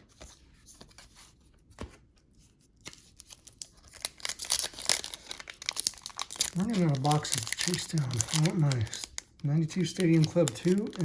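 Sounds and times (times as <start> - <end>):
wrapper crinkly rustling: 2.9 - 11.0.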